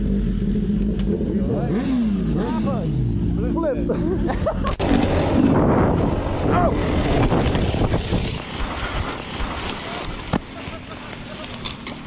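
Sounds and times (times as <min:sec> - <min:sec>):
wind buffeting microphone: 0:05.0 - 0:10.4.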